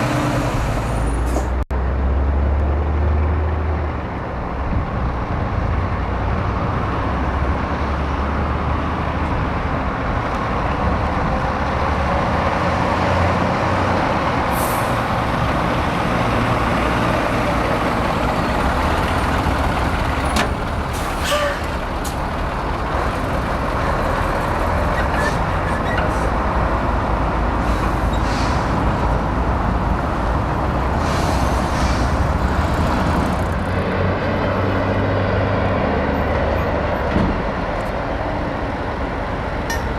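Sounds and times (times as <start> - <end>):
diesel truck engines droning: 0.0 - 39.9
air brake hisses: 27.6 - 28.8, 31.0 - 32.3.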